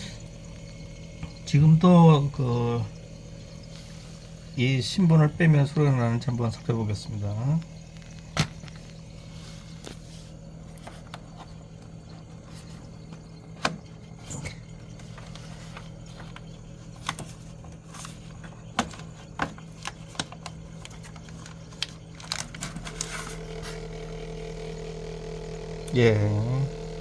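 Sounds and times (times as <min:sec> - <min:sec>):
buzzing vibration rattle: 0:00.0 - 0:27.0
refrigerator humming: 0:00.0 - 0:27.0.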